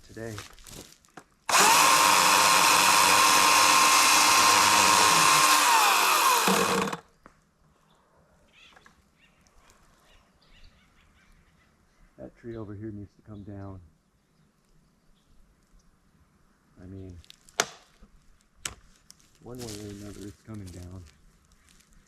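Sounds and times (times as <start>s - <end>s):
electric chainsaw running: 1.5s - 7.0s.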